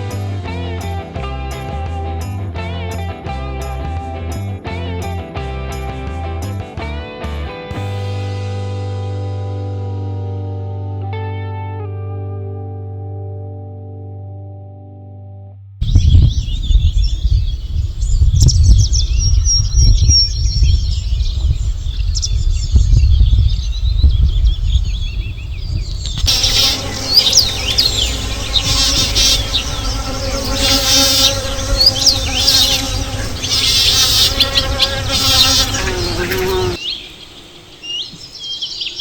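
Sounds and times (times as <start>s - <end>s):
songbirds chirping and trilling: 15.8s - 39.0s.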